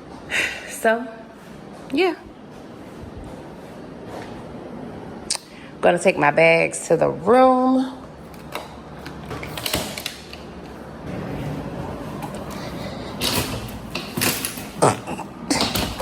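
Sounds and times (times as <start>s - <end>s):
luggage rolling rumble: 10.8s - 16.0s.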